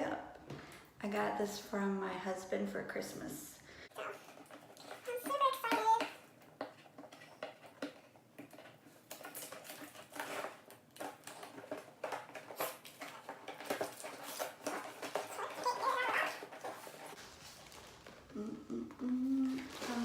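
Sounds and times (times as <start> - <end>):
packaging rustling and crinkling: 4.0 - 18.4, 19.2 - 20.0.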